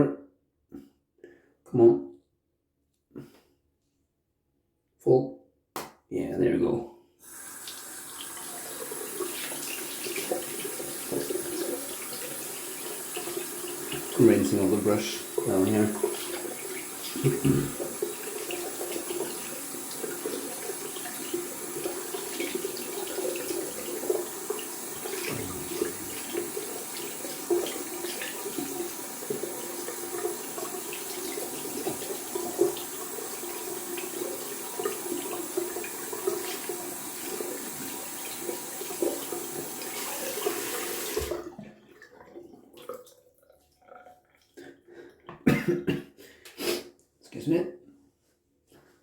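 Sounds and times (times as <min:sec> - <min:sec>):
tap running into a sink: 0:07.6 - 0:41.8.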